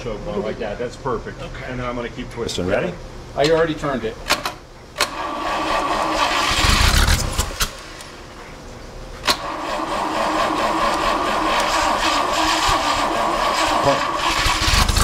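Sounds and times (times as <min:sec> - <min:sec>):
engine starter cranking: 0:04.3 - 0:07.7, 0:09.2 - 0:15.0.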